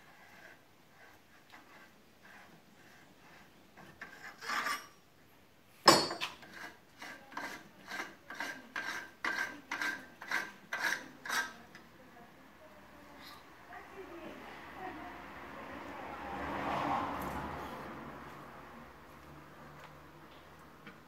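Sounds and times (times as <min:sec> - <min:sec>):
tool scraping metal: 0:00.0 - 0:05.1, 0:05.9 - 0:11.9.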